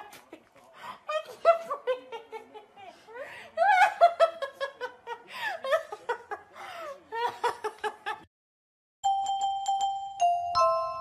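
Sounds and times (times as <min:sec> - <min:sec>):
woman laughing and giggling: 0:01.1 - 0:08.2
music with chiming bell-like notes: 0:09.0 - 0:11.0.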